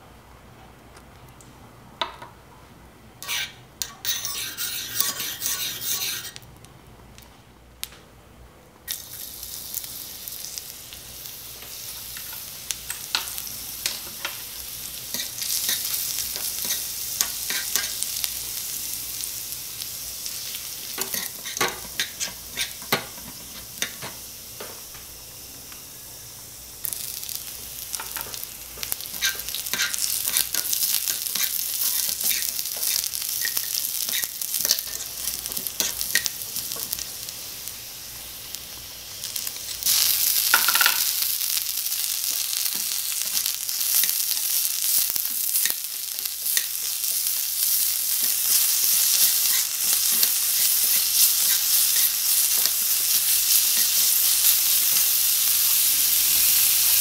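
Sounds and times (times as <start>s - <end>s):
meat sizzling in oil in a pan: 8.9s - 57.0s.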